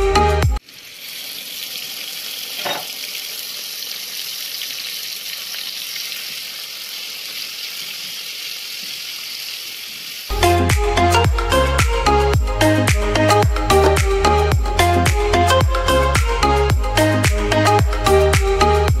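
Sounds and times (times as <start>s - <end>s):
chicken sizzling in hot oil: 0.6s - 10.3s.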